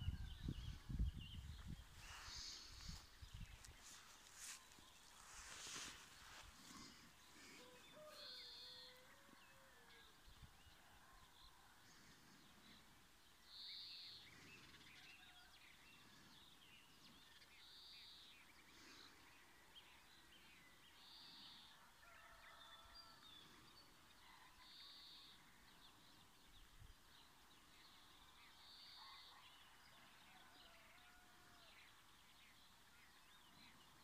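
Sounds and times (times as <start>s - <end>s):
faint bird chirps: 27.9s - 29.8s.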